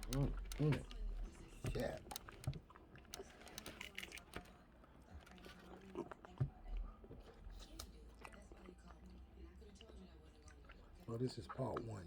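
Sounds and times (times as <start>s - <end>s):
hands handling seafood shells: 0.0s - 0.6s.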